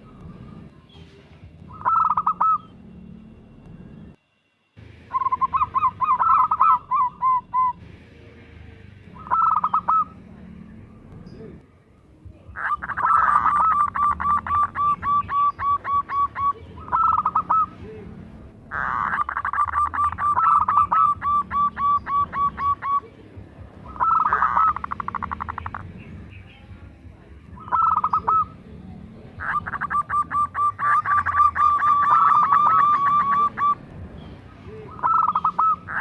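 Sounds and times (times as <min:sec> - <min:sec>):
dove cooing: 0:01.7 - 0:02.8, 0:05.1 - 0:07.8, 0:09.2 - 0:10.4, 0:12.5 - 0:23.2, 0:23.8 - 0:26.4, 0:27.6 - 0:33.8, 0:34.7 - 0:36.0.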